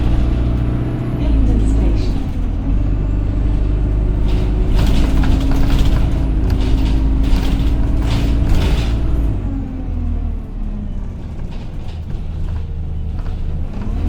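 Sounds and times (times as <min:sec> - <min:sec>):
bus engine rumble and whine: 0:00.0 - 0:14.0
irregular rattles: 0:03.4 - 0:09.5.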